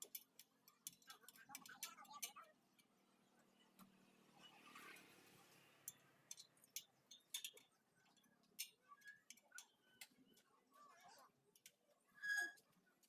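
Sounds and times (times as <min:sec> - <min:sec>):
metal tools tapping on wheel: 0:00.0 - 0:02.9, 0:05.8 - 0:10.2.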